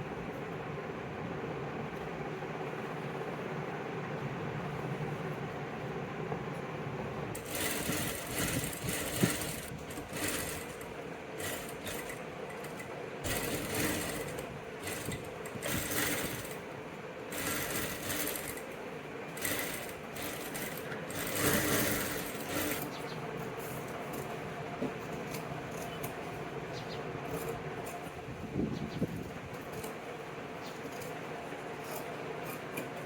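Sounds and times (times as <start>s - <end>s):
sewing machine stitching: 7.4s - 16.7s, 17.3s - 23.0s.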